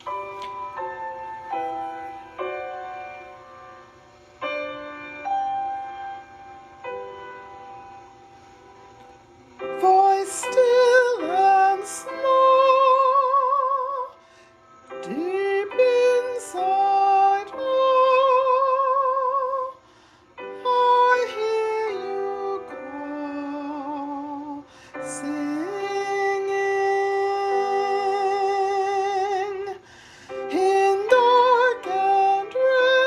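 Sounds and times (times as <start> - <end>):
woman singing slow solo song: 9.7 - 14.2, 14.9 - 19.8, 20.5 - 29.8, 30.4 - 33.0.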